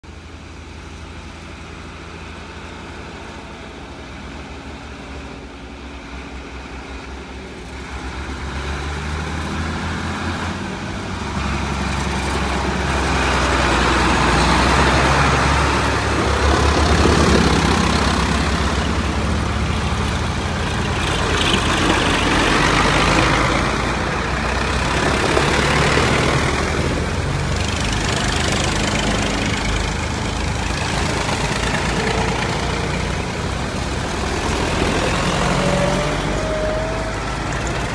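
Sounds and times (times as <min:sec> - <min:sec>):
tractor engines rumbling: 0:00.0 - 0:37.9.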